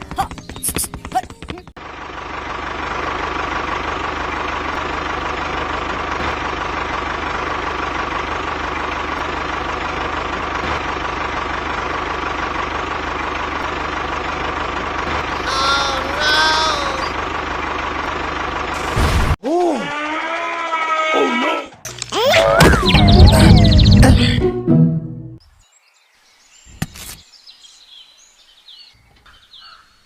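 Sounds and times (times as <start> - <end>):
engine whine: 0.0 - 19.4, 21.9 - 24.5
tractor engine running: 0.0 - 19.4, 21.9 - 24.5
short pitched sounds: 21.9 - 24.5.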